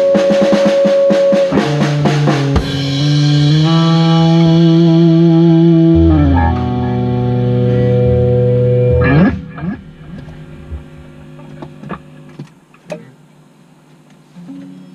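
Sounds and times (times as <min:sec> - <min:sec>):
guitar chord: 0:01.6 - 0:12.4
low bass: 0:02.2 - 0:12.4.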